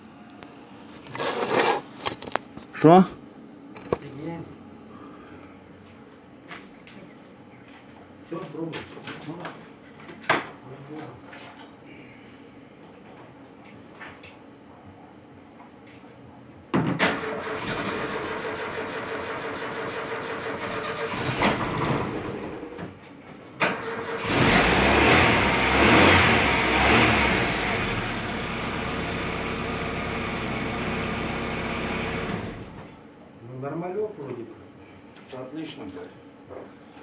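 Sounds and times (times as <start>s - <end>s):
car engine cranking: 24.2s - 32.9s
car engine revving and idling: 24.2s - 32.9s.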